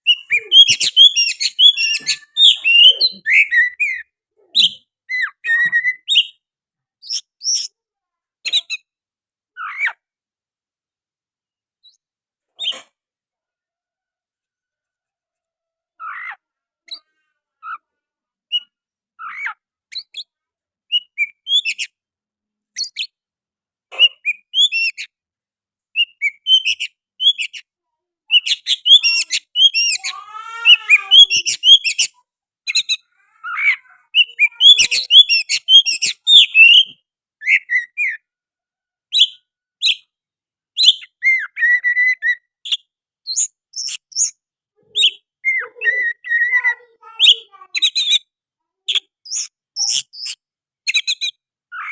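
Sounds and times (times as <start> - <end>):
bird singing whistles and chirps: 0.1 - 6.4, 34.2 - 38.2, 40.8 - 44.3.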